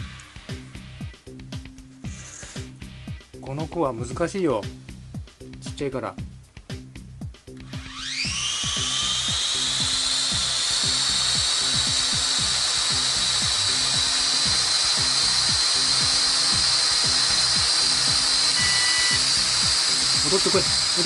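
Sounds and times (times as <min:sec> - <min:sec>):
drone propellers whining: 0:07.6 - 0:21.0.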